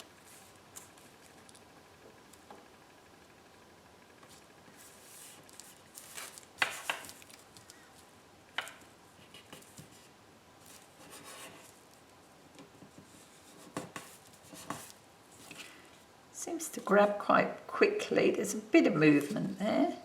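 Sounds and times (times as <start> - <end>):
paper rustling: 4.2 - 8.1.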